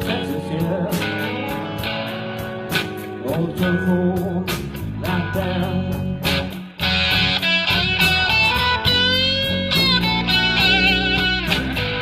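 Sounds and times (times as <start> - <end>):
bass guitar: 0.0 - 12.0
drum beat with cymbals: 0.0 - 12.0
electric guitar lead line: 0.0 - 12.0.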